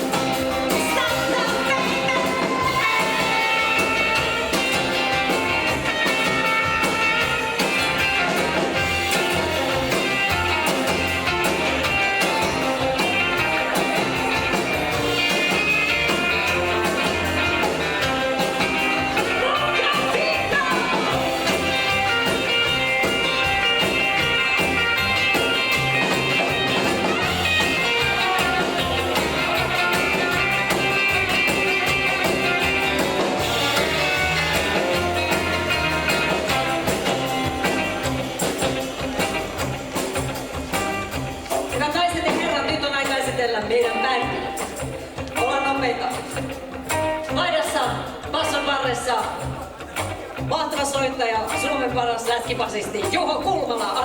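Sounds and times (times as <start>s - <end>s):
slap double bass: 0.0s - 43.4s
drums: 0.0s - 54.0s
electric guitar: 0.0s - 54.0s.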